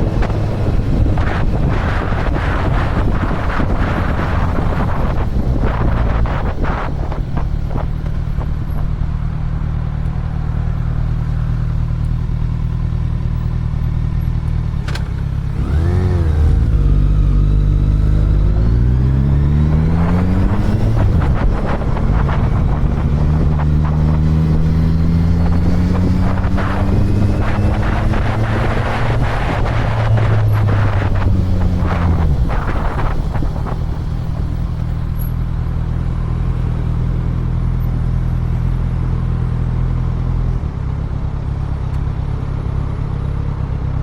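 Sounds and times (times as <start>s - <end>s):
wind buffeting microphone: 0.0s - 12.0s, 15.5s - 37.7s
motorcycle engine accelerating: 0.0s - 44.0s.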